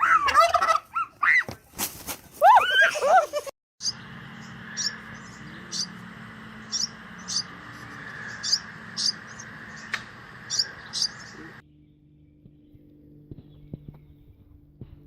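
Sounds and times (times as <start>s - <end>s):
steady background hum: 3.0s - 15.0s
bird chirping: 3.8s - 6.0s, 6.6s - 14.5s.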